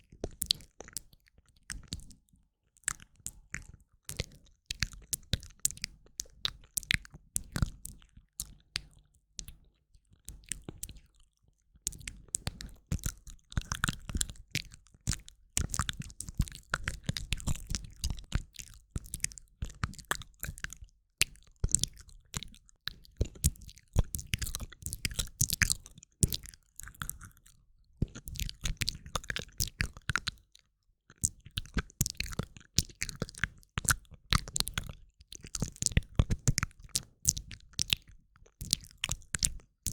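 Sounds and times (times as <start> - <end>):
tongue and lip clicks: 2.8 - 39.9.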